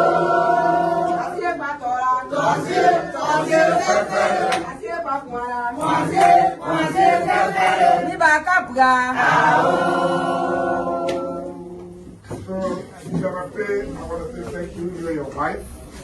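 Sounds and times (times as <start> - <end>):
group of voices singing: 0.0 - 12.4.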